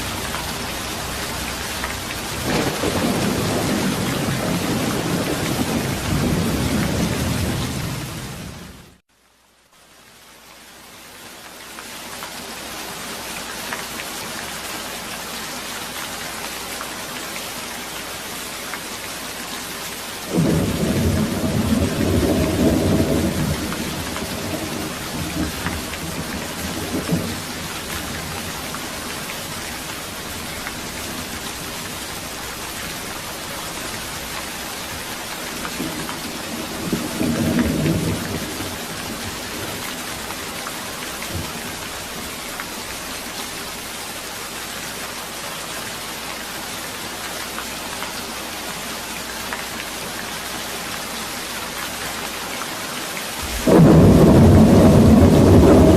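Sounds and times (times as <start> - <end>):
heavy rain: 0.0 - 55.9
thunder rumbling: 2.2 - 8.5, 20.3 - 34.3, 35.4 - 39.8, 53.4 - 55.9.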